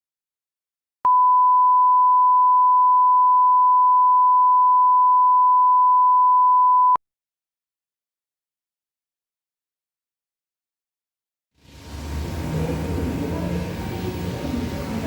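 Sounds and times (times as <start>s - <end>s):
steady electronic beep: 1.1s - 7.0s.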